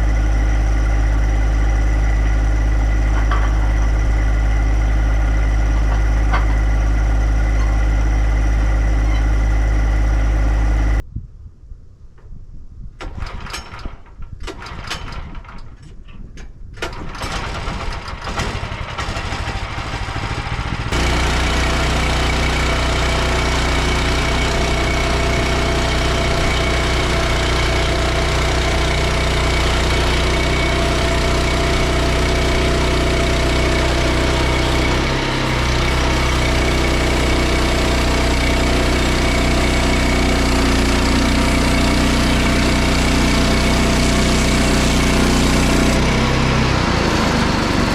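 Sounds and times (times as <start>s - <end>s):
engine running loudly: 0.0s - 11.0s, 16.9s - 47.9s
engine knocking: 16.9s - 47.9s.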